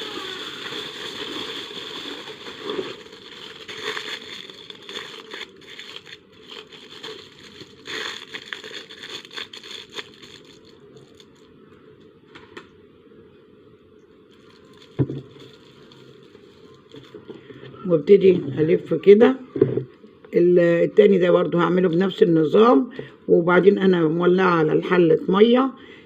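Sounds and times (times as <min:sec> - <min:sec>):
aluminium foil crinkling: 0:00.0 - 0:11.5, 0:14.3 - 0:17.5.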